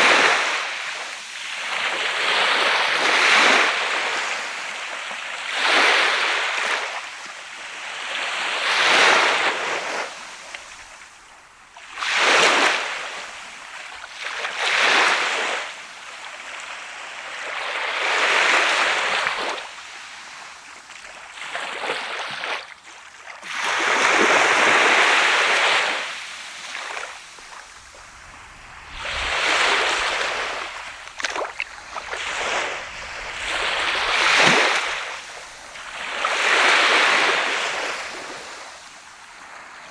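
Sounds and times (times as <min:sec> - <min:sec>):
waves breaking on beach: 0:11.8 - 0:39.9.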